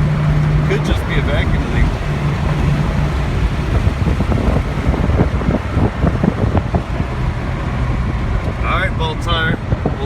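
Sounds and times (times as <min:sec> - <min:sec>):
car engine rumble: 0:00.0 - 0:10.0
road and wind noise: 0:00.0 - 0:10.0.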